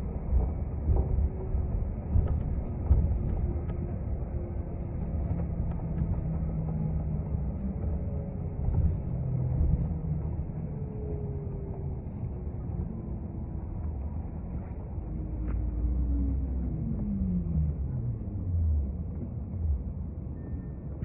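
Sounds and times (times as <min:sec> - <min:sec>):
bus engine and road rumble: 0:00.0 - 0:21.0
faint drivetrain whine: 0:00.0 - 0:21.0.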